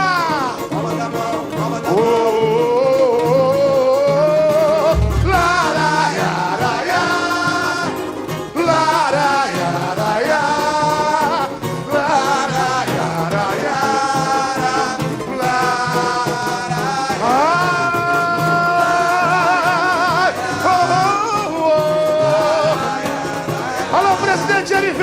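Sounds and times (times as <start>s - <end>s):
samba drums playing: 0.0s - 8.0s, 8.7s - 25.0s
choir singing long sliding notes: 4.9s - 8.0s, 8.7s - 11.1s, 11.9s - 17.6s.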